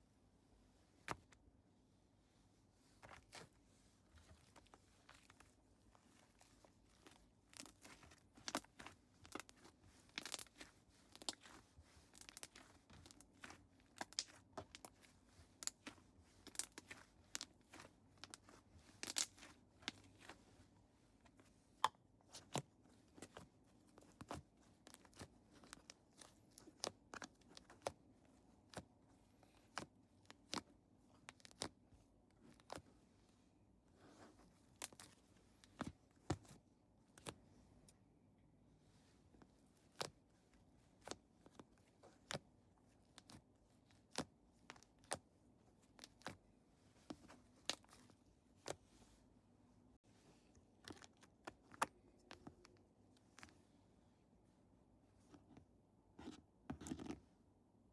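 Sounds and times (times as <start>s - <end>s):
slime crackling and popping: 7.0s - 20.4s.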